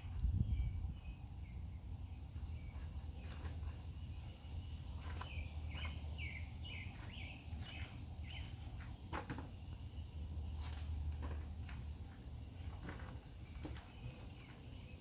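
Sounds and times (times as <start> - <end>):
bird singing falling chirps: 0.2 - 8.8.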